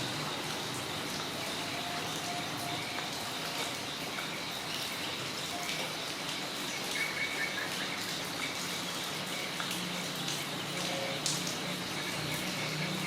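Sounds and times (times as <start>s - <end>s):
dripping water ticks: 0.0s - 13.0s
steady rain hiss: 0.0s - 13.0s.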